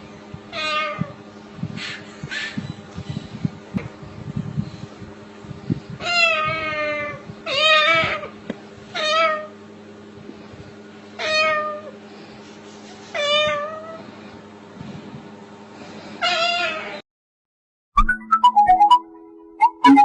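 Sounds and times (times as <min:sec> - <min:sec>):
parrot meowing like a cat: 0:00.5 - 0:01.2, 0:06.0 - 0:09.5, 0:11.2 - 0:12.0, 0:13.1 - 0:14.0, 0:16.2 - 0:17.0.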